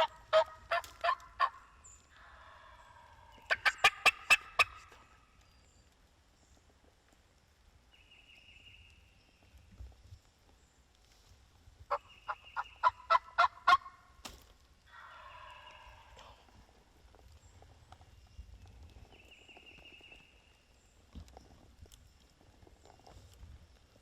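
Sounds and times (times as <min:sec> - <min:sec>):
turkey yelps: 0:00.0 - 0:05.1, 0:11.9 - 0:14.0, 0:14.9 - 0:16.4
turkey gobble: 0:00.0 - 0:05.2, 0:11.9 - 0:14.0, 0:14.9 - 0:16.4.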